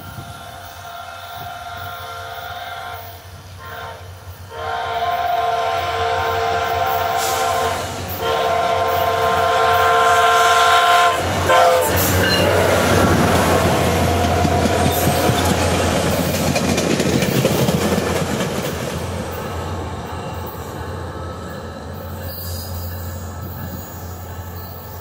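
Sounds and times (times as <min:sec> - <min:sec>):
train rumble and wheel clatter: 0:00.0 - 0:25.0
locomotive horn chord: 0:00.2 - 0:15.1.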